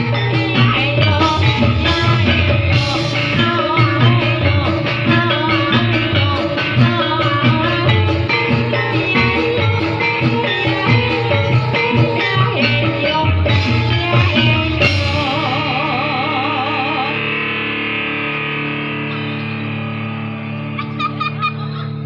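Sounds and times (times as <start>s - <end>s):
drum and band rhythm: 0.0s - 17.2s
held chord with wavering melody: 0.0s - 22.0s.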